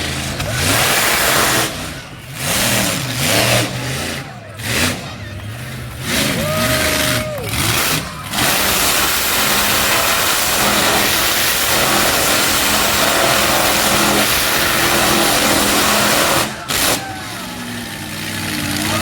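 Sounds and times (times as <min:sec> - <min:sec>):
truck engine at high revs: 0:00.0 - 0:19.0.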